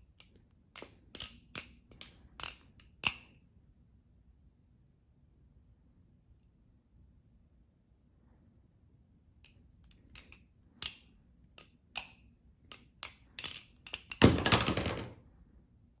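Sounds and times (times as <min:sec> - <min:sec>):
butterfly knife clicking: 0:00.2 - 0:03.3, 0:10.1 - 0:14.2.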